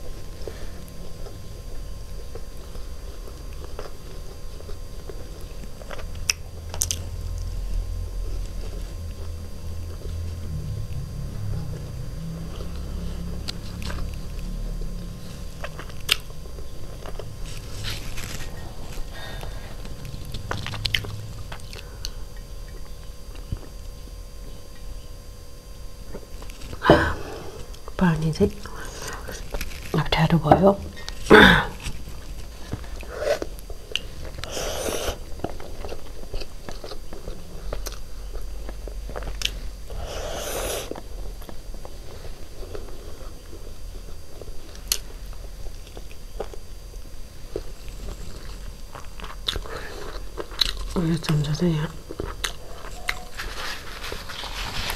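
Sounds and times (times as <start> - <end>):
close chewing and mouth sounds: 0.0 - 25.0, 31.0 - 54.9
chewing mouth sounds: 45.8 - 51.0, 52.0 - 53.6.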